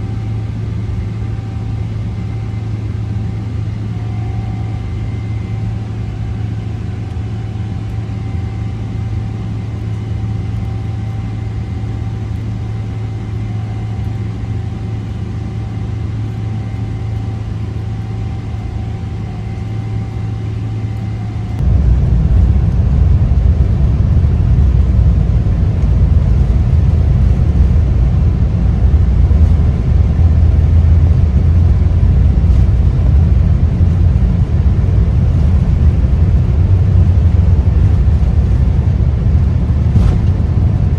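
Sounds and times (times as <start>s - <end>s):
aircraft cabin engine hum: 0.0s - 40.9s
loud deep engine rumble: 20.6s - 40.9s.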